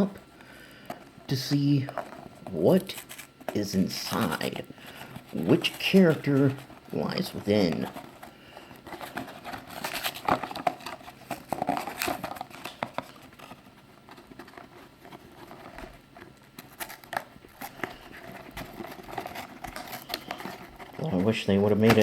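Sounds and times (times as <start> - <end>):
cardboard box scraping and crinkling: 8.9 - 13.7.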